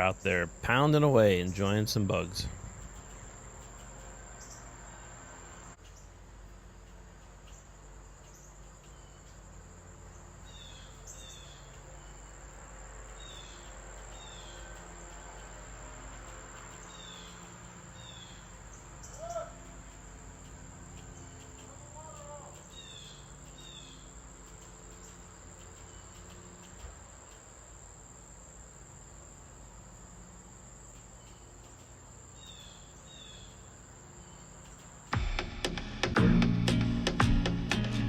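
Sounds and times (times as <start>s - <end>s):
loud bird call: 16.8s - 20.0s.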